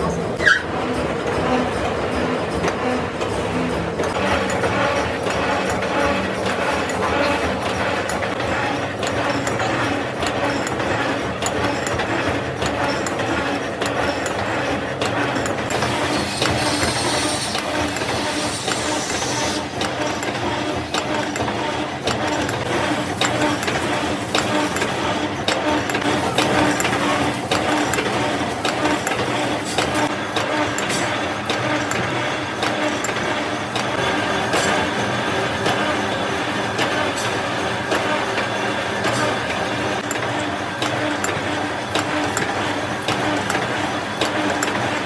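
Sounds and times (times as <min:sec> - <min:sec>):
workshop machinery humming: 0:00.0 - 0:45.0.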